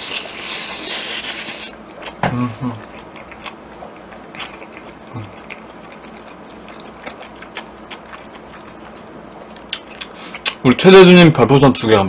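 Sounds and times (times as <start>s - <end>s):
wet chewing mouth sounds: 2.0s - 10.6s.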